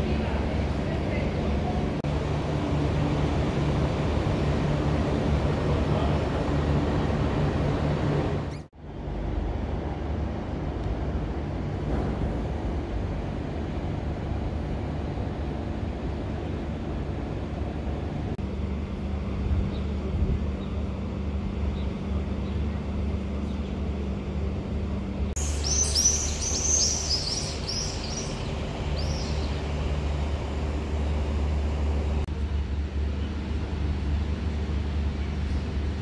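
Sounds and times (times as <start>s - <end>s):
faint hum: 0.0s - 36.0s
low outdoor rumble: 0.0s - 36.0s
bird chirping rapidly: 25.4s - 29.8s.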